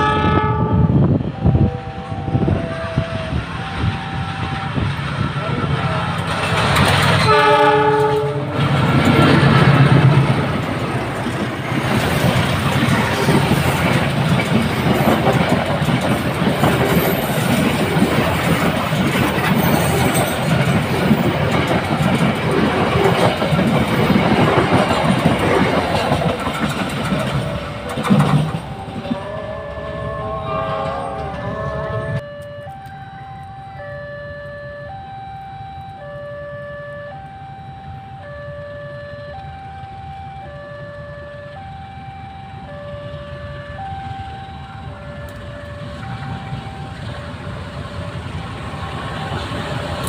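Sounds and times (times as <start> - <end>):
train horn: 0.0 - 6.0, 7.2 - 8.8, 28.7 - 32.2
train rumbling past: 0.0 - 33.9, 39.4 - 50.0
electronic warning tone: 0.7 - 6.0, 28.4 - 49.6
wheels clattering over rail joints: 5.9 - 29.2.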